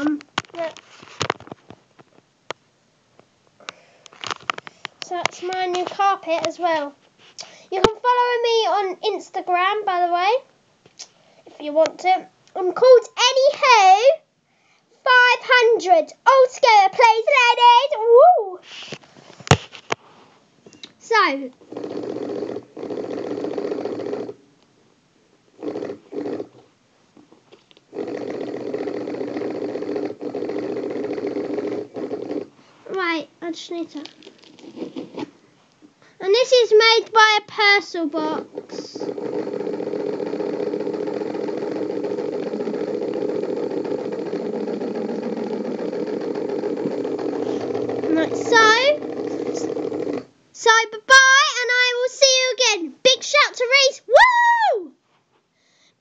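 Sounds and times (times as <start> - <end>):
small electric motor buzzing: 21.6 - 24.4, 27.9 - 32.6, 38.2 - 50.3.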